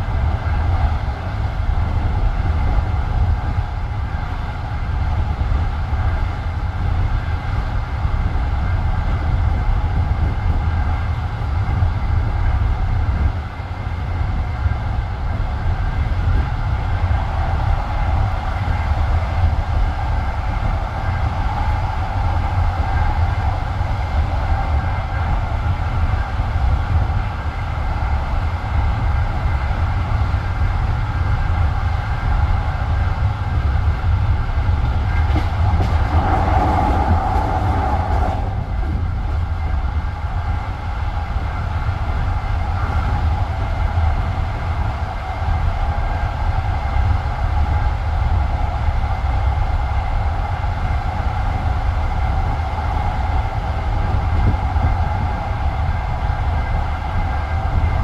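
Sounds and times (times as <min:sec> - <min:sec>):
train wheels rumbling on rails: 0:00.0 - 0:58.0
high rail noise: 0:15.3 - 0:43.5.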